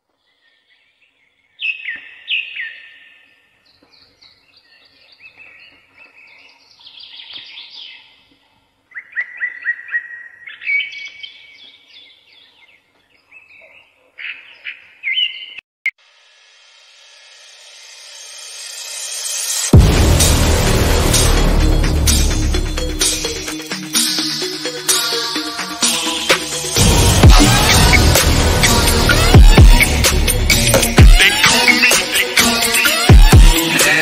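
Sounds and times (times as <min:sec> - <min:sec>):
birds chirping: 0:00.0 - 0:15.6.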